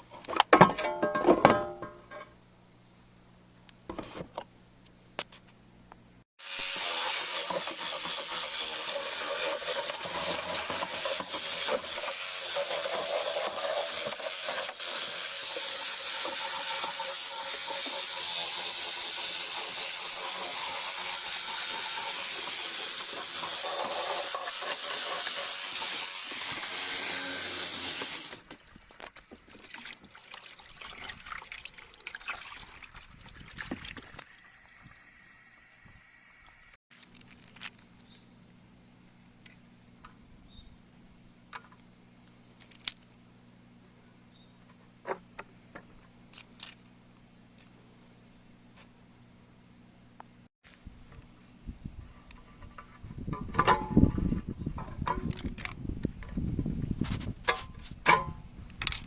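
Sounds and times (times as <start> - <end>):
water dripping and trickling: 29.4 - 35.0.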